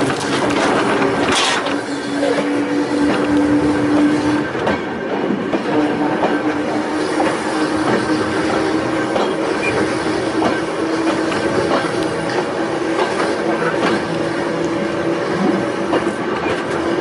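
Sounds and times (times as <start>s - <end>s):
wheels clicking over rail joints: 0.0s - 6.5s
electric railway car humming: 0.0s - 17.0s.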